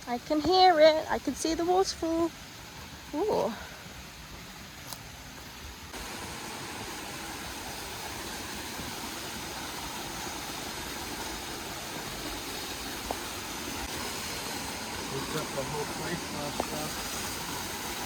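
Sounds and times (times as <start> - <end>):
waterfall rushing: 5.4 - 18.0.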